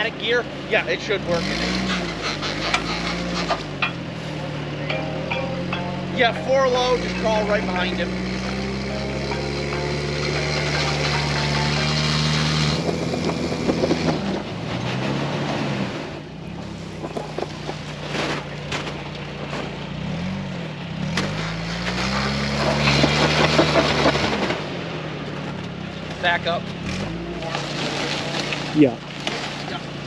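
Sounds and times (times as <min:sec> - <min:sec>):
vehicle engine under load: 0:00.0 - 0:30.0
wheels grinding in mud: 0:00.0 - 0:30.0.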